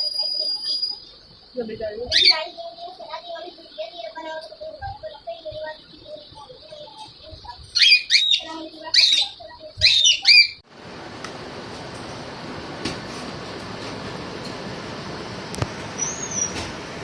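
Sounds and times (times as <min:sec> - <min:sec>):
steady hiss: 0:00.0 - 0:07.8
soft bird chirping: 0:00.0 - 0:10.6, 0:16.0 - 0:16.7
parrots making high-pitched calls: 0:02.1 - 0:02.5, 0:07.7 - 0:10.6.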